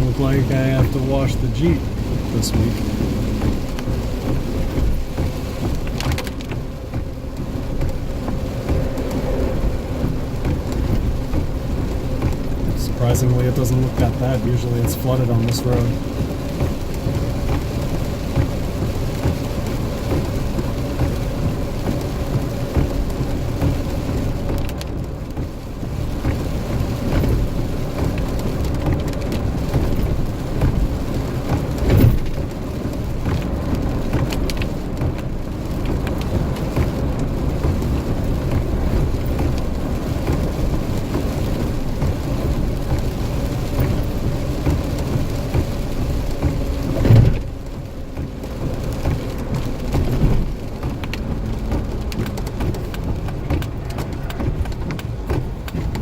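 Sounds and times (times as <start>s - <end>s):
vehicle engine and tyre rumble: 0.0s - 56.0s
water spray from tyres: 0.0s - 56.0s
thump: 47.0s - 47.5s.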